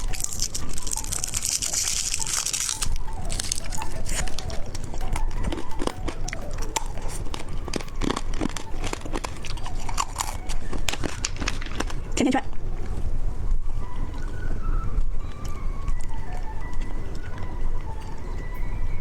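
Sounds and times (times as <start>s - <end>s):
candy crunching and chewing: 0.0s - 13.0s, 13.8s - 19.0s
crinkly wrapper rustle: 0.0s - 13.1s.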